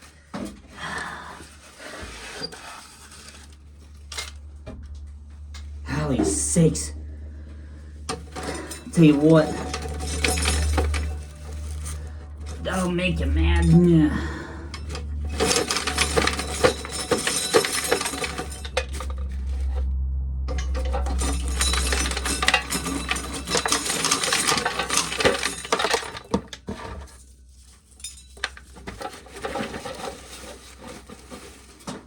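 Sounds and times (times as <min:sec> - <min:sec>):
low steady hum: 0:00.2 - 0:32.0
corn kernels rattling: 0:08.2 - 0:19.8, 0:20.5 - 0:32.0.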